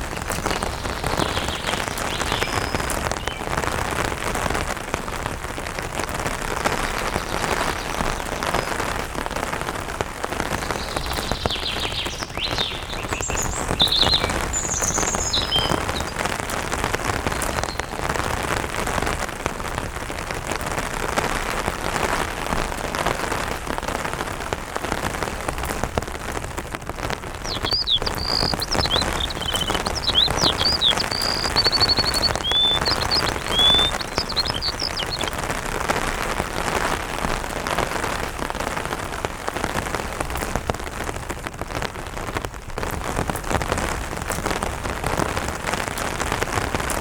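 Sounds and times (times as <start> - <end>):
bird chirping: 0.0 - 3.7, 10.5 - 16.3, 17.2 - 18.3, 27.4 - 35.5
rain pattering on an umbrella: 0.0 - 47.0.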